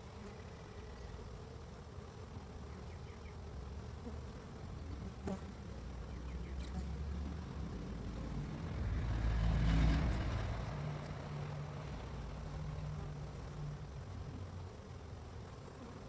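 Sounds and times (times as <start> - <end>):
bees buzzing: 0.0 - 16.0
low rumble: 7.0 - 14.1.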